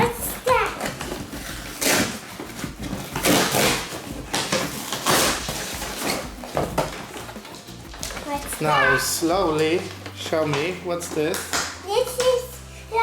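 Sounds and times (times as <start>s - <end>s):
cardboard box tearing and rustling: 0.0s - 9.0s.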